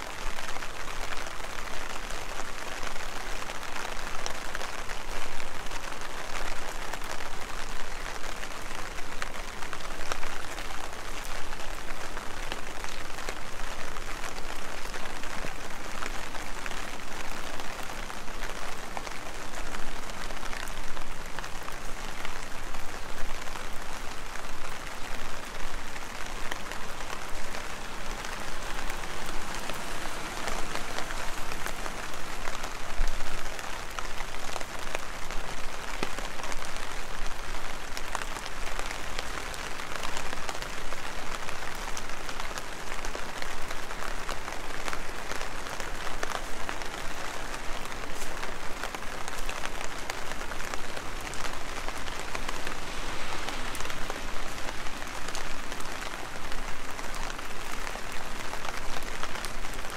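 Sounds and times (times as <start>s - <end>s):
heavy rain: 0.0s - 59.9s
raindrops ticking: 8.3s - 59.9s.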